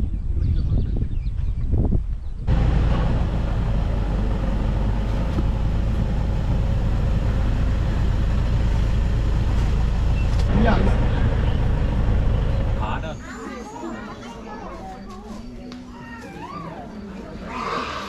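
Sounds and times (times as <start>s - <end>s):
vehicle engine hum: 2.5s - 13.3s
road noise: 2.5s - 13.8s
voices: 6.9s - 18.0s.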